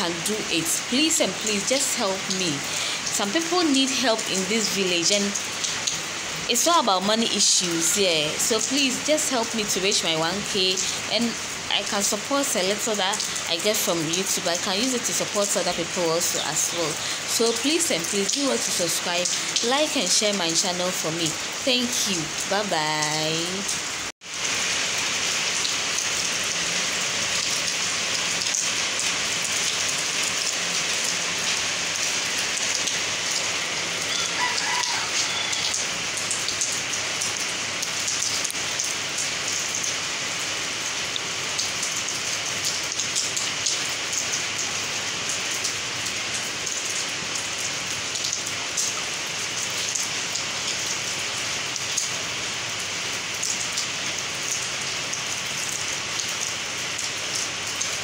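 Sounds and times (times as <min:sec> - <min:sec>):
raindrops ticking: 0:00.0 - 0:24.1, 0:25.5 - 0:40.1
rain on concrete: 0:00.0 - 0:58.0.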